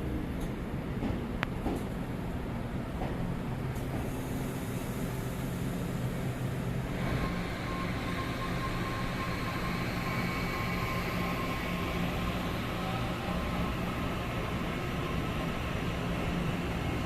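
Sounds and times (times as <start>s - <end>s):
train low hum: 0.0s - 17.0s
train hiss: 3.8s - 17.0s
thin high whine: 6.9s - 14.0s.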